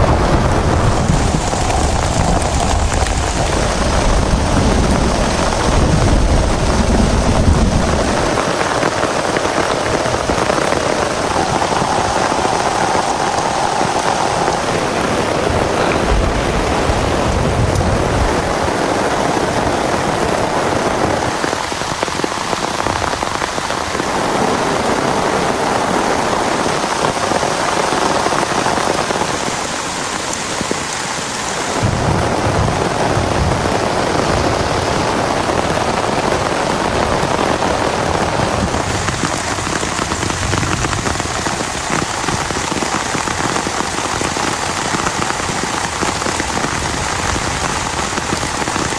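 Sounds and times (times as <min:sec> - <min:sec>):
low rumble: 0:00.0 - 0:08.4, 0:14.4 - 0:18.7
heavy rain pouring: 0:00.0 - 0:48.9.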